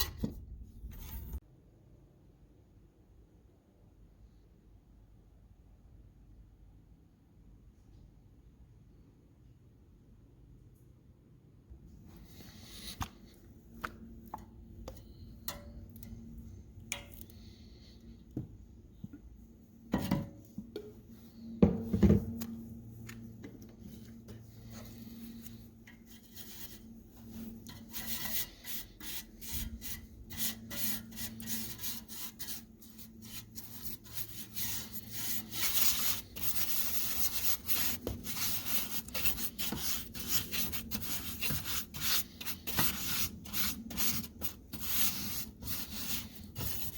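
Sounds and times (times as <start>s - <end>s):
hand sanding strokes: 24.0s - 46.9s.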